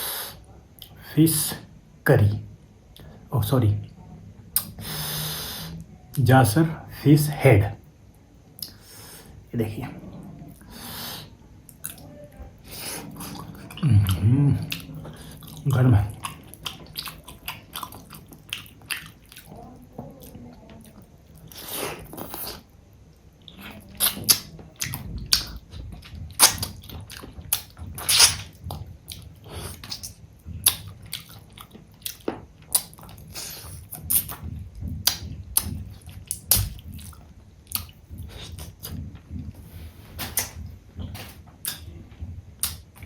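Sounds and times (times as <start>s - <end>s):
person chewing: 4.6s - 5.4s, 8.6s - 9.0s, 10.5s - 42.0s, 42.6s - 43.0s.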